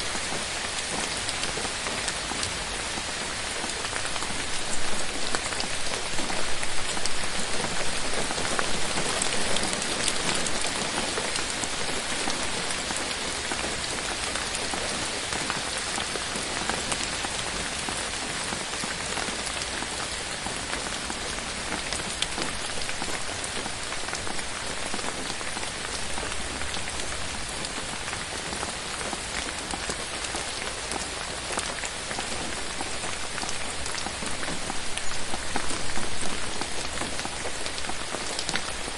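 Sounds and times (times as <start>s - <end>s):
close raindrops tapping: 0.0s - 38.9s
steady rain falling: 0.0s - 38.9s.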